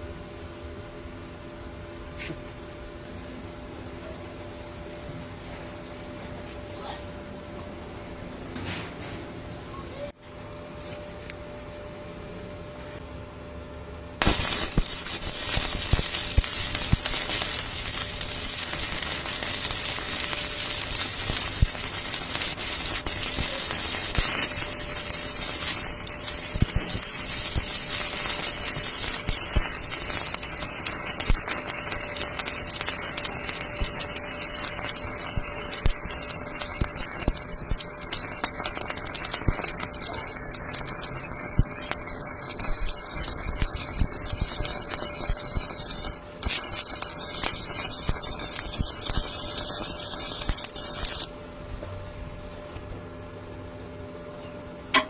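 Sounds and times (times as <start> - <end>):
welding arc crackling: 14.2 - 51.3.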